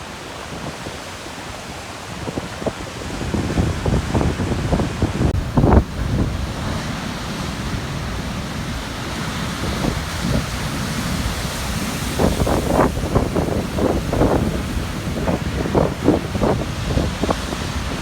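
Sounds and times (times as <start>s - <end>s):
surf breaking on rocky shore: 0.0s - 18.0s
wind buffeting microphone: 0.1s - 18.0s.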